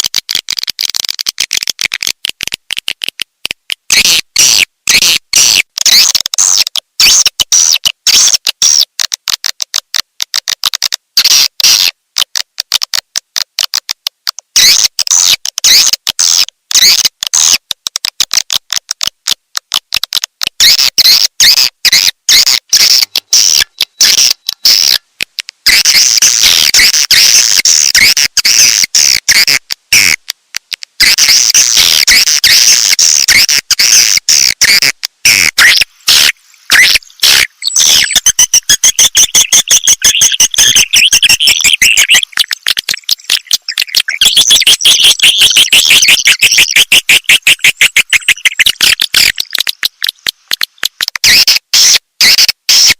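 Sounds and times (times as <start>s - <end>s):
clicks: 0.0s - 52.9s
swiftlets twittering chirps: 31.2s - 50.3s.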